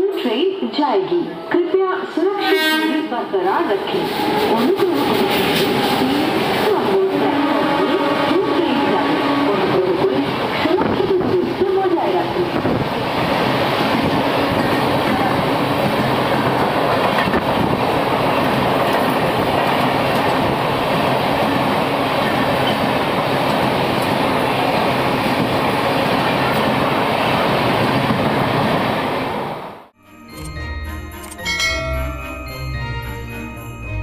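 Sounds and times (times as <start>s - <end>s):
train wheels rushing on rails: 3.5s - 29.8s.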